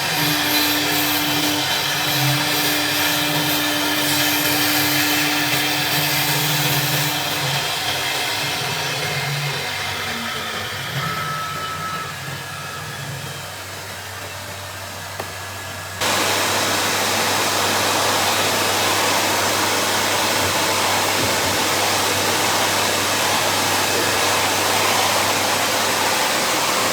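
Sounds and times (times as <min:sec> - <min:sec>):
cnc router cutting acrylic: 0:00.0 - 0:26.9.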